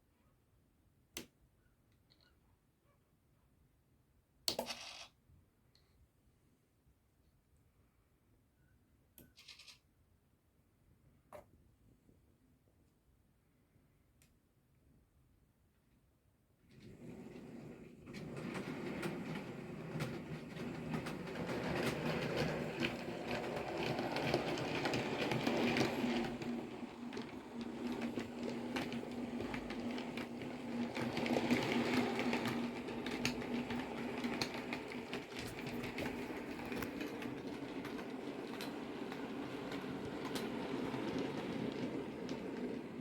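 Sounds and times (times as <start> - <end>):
wheels clicking over rail joints: 16.7 - 43.0.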